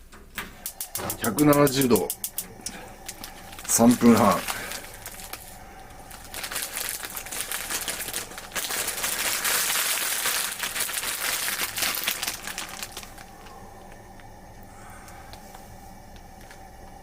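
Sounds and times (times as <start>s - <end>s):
hot oil sizzling and crackling: 6.2s - 13.2s.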